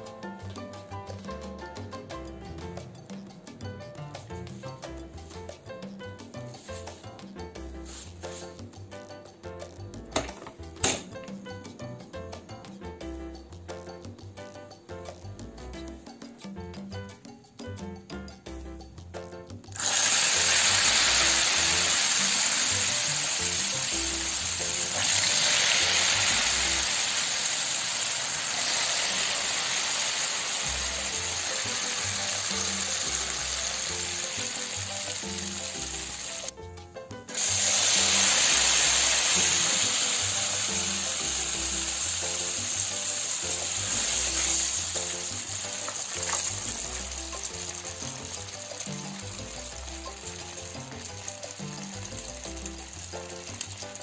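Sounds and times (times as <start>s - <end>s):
background music: 0.0s - 54.0s
egg sizzling in hot oil: 6.4s - 9.2s, 19.2s - 36.5s, 37.3s - 54.0s.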